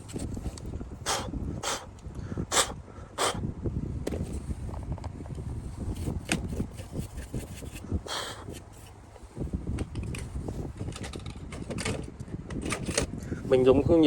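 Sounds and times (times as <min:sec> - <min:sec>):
rustling scrape: 0:05.6 - 0:09.4.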